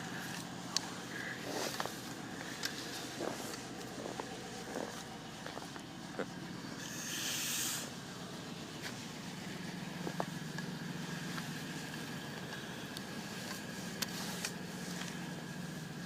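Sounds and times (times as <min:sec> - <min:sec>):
car engine idling: 0:00.0 - 0:16.0
brief hiss: 0:06.8 - 0:07.9.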